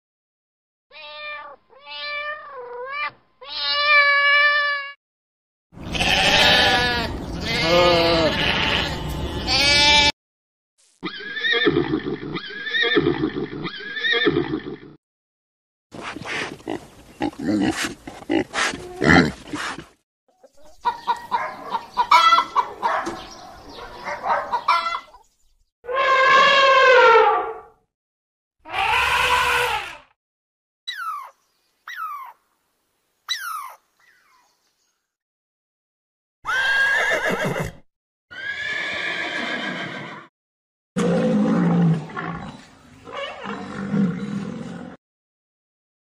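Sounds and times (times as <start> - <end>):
horse neighing: 11.0 - 14.9, 28.7 - 30.0, 36.5 - 40.3
chickens clucking: 20.4 - 25.2.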